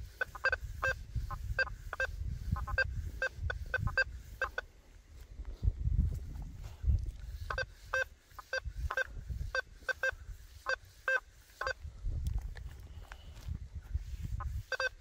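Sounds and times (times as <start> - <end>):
metal detector beeps: 0.0 - 4.7, 7.5 - 11.8, 14.4 - 15.0.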